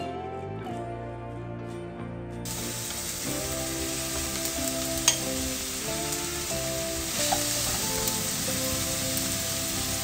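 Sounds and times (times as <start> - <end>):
onion sizzling in frying pan: 2.4 - 10.0.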